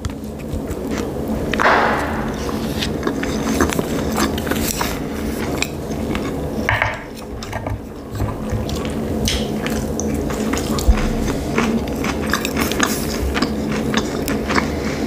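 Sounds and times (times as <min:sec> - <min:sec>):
wet chewing mouth sounds: 0:02.4 - 0:15.0.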